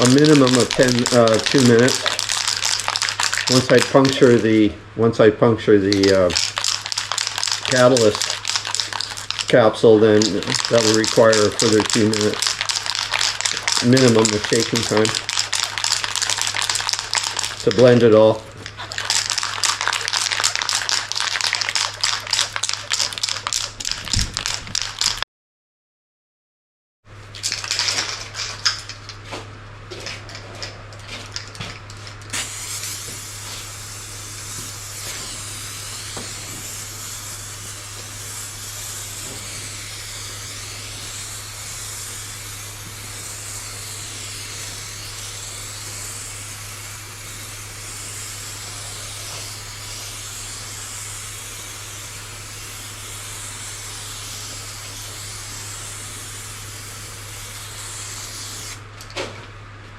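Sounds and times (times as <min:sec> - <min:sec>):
aerosol can clicks and rattles: 0:00.0 - 0:04.3, 0:05.9 - 0:17.9, 0:18.6 - 0:25.2, 0:27.4 - 0:29.1
aerosol spraying hiss: 0:00.0 - 0:04.4, 0:06.0 - 0:18.0, 0:18.8 - 0:24.9, 0:32.3 - 0:58.8
constant low hum: 0:00.0 - 0:25.2, 0:27.1 - 0:59.9.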